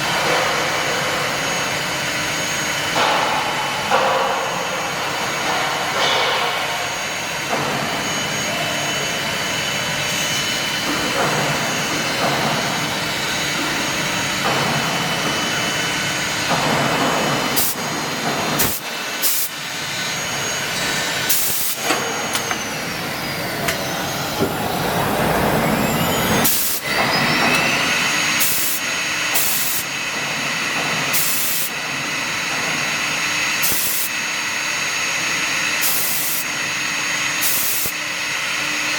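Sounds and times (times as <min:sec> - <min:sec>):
drilling machine running: 0:00.6 - 0:38.9
spindle whines gliding: 0:20.0 - 0:28.5.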